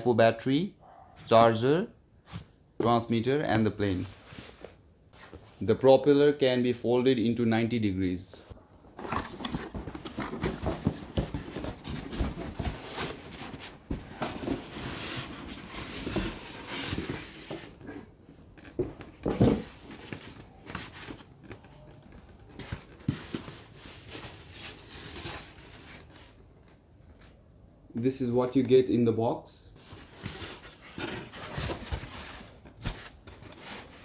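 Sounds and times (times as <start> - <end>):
cardboard box being opened: 9.0 - 17.8.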